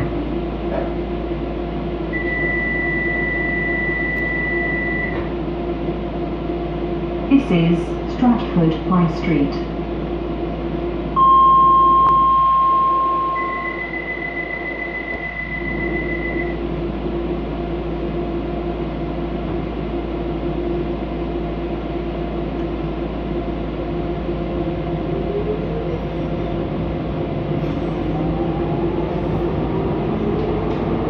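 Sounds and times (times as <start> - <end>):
train equipment hum: 0.0 - 31.0
electronic warning tones: 2.1 - 5.2, 11.2 - 16.6.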